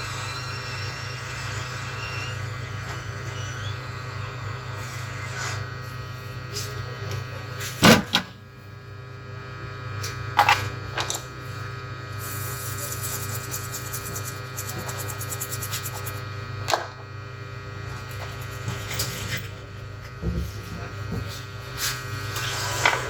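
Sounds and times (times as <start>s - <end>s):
electrical equipment hum: 0.0s - 23.0s.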